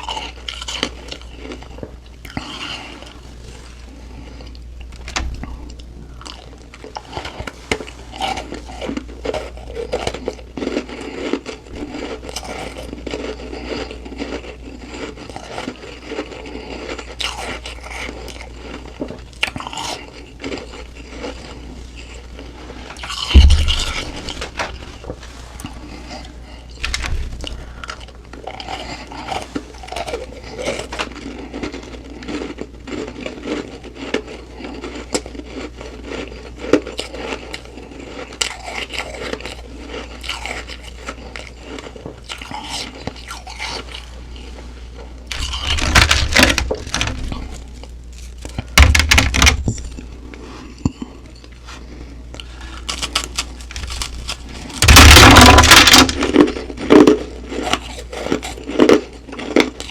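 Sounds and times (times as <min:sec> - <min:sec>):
person chewing frosty ice: 0:00.0 - 0:59.9
loud crunching bites: 0:23.0 - 0:44.2, 0:45.3 - 0:49.4, 0:52.6 - 0:59.9.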